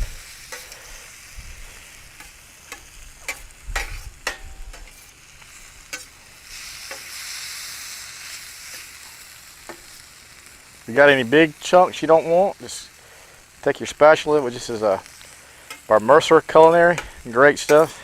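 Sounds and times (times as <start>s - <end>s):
food sizzling on a griddle: 0.0s - 18.0s
spatula scraping a pan: 0.1s - 1.2s, 2.1s - 10.0s, 14.7s - 18.0s.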